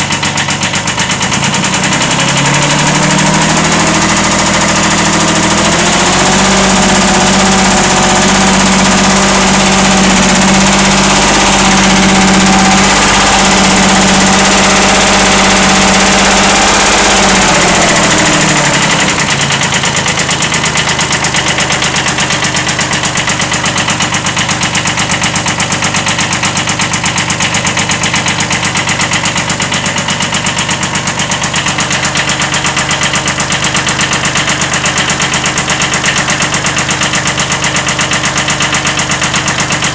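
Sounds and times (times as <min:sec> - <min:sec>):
diesel tractor engine running: 0:00.0 - 0:39.9
engine rod knocking: 0:00.0 - 0:39.9.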